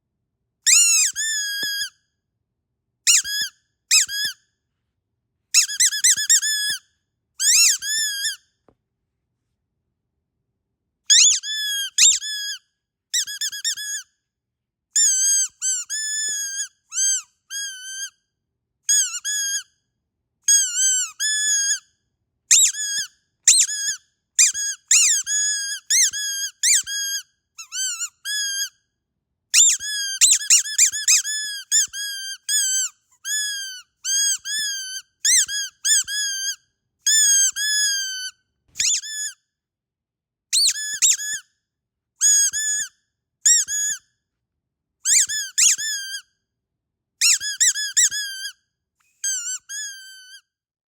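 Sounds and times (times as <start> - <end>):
squeaky dog toy squeaking: 0.6 - 2.0, 3.0 - 4.4, 5.5 - 8.5, 11.1 - 14.1, 15.0 - 18.2, 18.8 - 19.7, 20.4 - 21.9, 22.5 - 28.8, 29.5 - 39.4, 40.5 - 41.5, 42.2 - 44.1, 45.0 - 46.3, 47.2 - 50.6.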